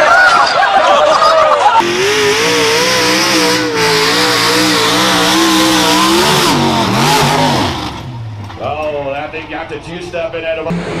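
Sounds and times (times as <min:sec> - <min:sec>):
tractor engine at high revs: 0:01.8 - 0:08.5, 0:10.6 - 0:11.0.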